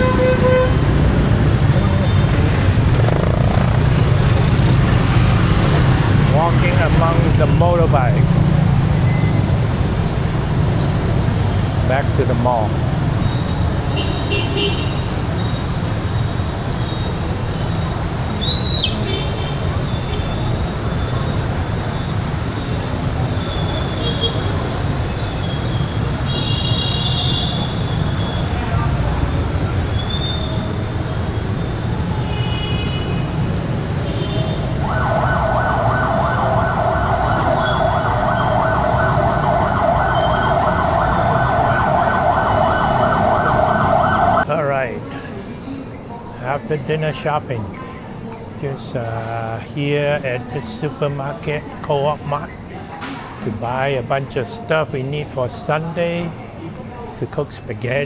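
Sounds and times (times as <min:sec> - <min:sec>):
high horn toot: 0:00.0 - 0:00.9
motorbike engines rumbling: 0:00.0 - 0:58.0.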